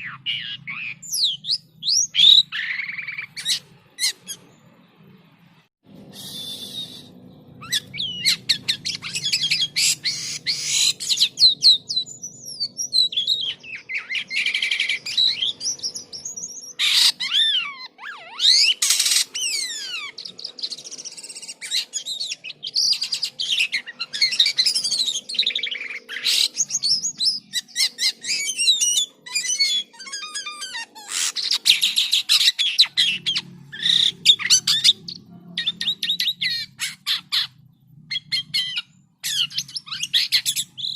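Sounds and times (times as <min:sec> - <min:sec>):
starling singing: 0:00.0 - 0:05.4, 0:06.0 - 0:40.9.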